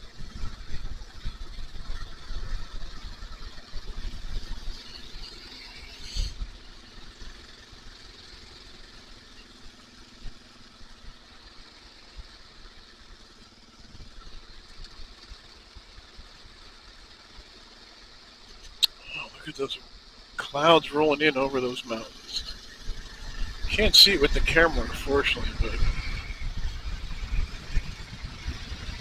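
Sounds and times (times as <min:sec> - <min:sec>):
motorcycle engine rumble: 0:00.0 - 0:29.0
wind noise on microphone: 0:22.3 - 0:29.0.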